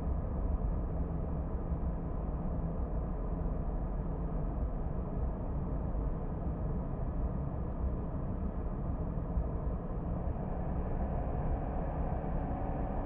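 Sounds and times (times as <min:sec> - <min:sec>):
faint steady hum: 0:00.0 - 0:13.0
car engine and tyre rumble: 0:08.8 - 0:13.0.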